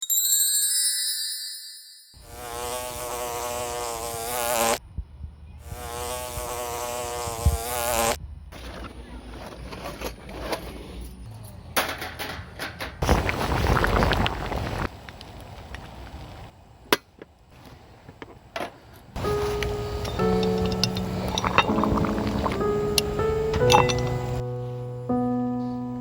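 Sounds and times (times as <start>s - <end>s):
insect buzzing: 2.2s - 4.8s, 5.6s - 8.2s, 19.2s - 24.4s.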